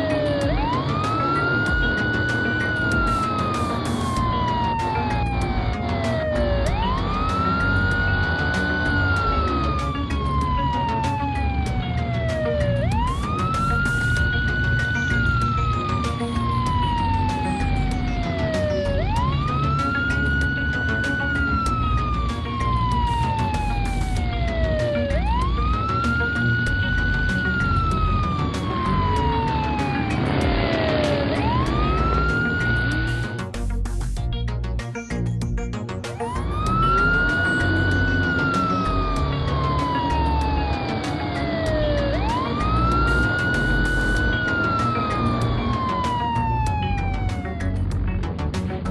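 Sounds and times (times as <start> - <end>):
emergency vehicle siren wailing: 0.0 - 33.8, 36.1 - 48.9
background music with a beat: 0.0 - 48.9.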